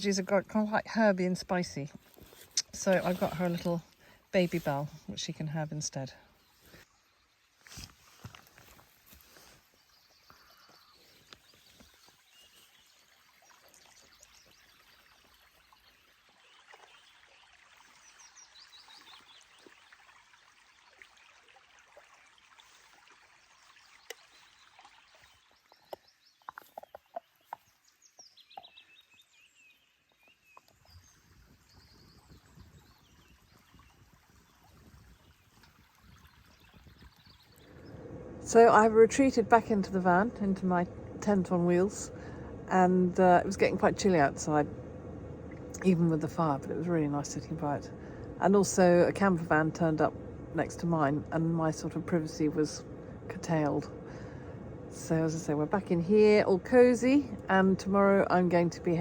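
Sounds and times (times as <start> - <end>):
distant birds chirping: 36.2 - 59.0.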